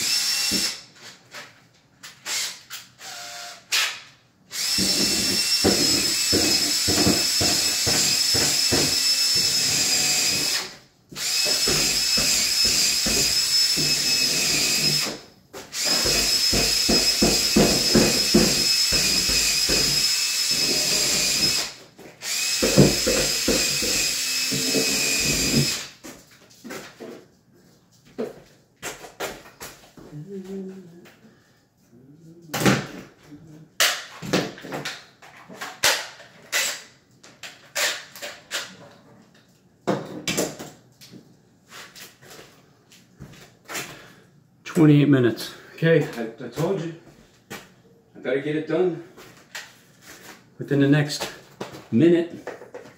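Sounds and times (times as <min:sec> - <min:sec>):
power drill driving screws: 0:00.0 - 0:00.8, 0:02.2 - 0:26.0.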